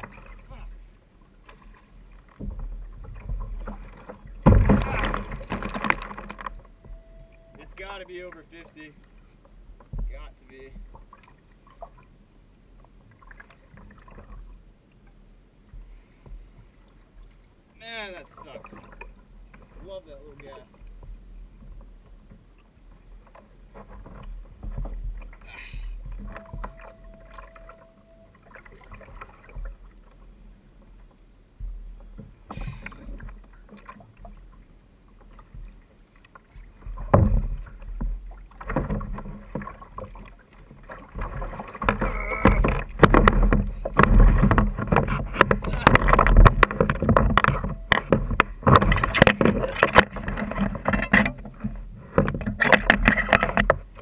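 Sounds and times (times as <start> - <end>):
knocks and clatter on kayak: 0.0 - 54.0
rumble of water and wind: 0.0 - 54.0
thin steady tone: 6.4 - 9.0, 25.4 - 29.7
knocks and handling sounds: 40.9 - 54.0.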